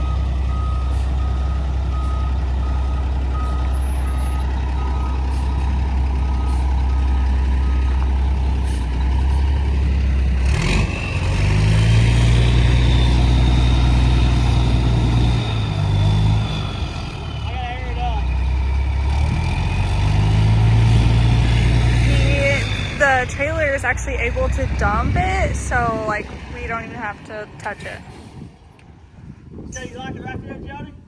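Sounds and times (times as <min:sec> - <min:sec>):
backup alarm beeping: 0:00.0 - 0:08.1, 0:22.0 - 0:28.0
truck engine running: 0:00.0 - 0:29.2.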